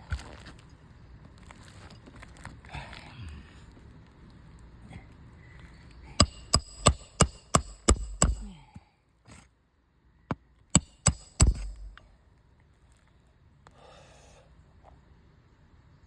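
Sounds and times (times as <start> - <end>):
hammer strikes on roof: 6.2 - 8.6, 10.8 - 12.0.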